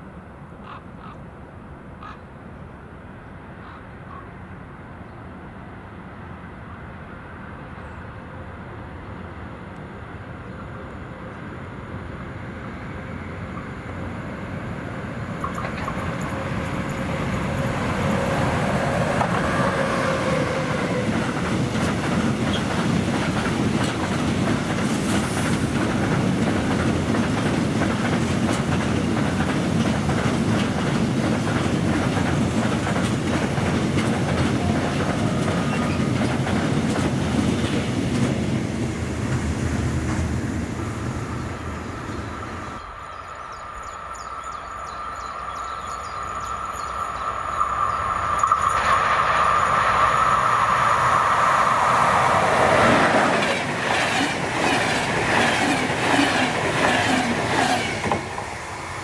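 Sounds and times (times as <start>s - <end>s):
freight train rumble: 3.0s - 59.0s
wheels clacking over rail joints: 15.2s - 38.6s, 47.6s - 58.5s.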